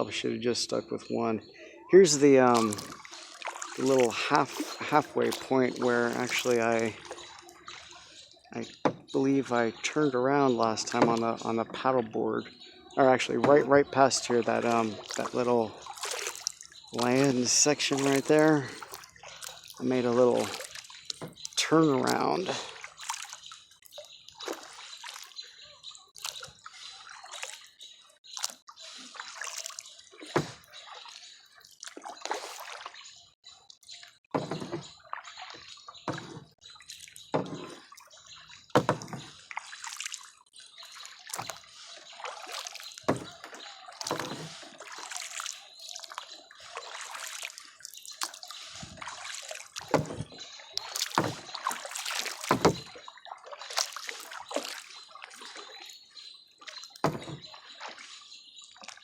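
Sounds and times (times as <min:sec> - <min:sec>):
water dripping off paddle: 0:02.0 - 0:12.2, 0:13.0 - 0:33.1, 0:33.7 - 0:59.0
paddle splashing into water: 0:02.1 - 0:08.1, 0:13.2 - 0:25.4, 0:26.1 - 0:27.7, 0:28.4 - 0:33.0, 0:34.3 - 0:56.0, 0:56.6 - 0:59.0.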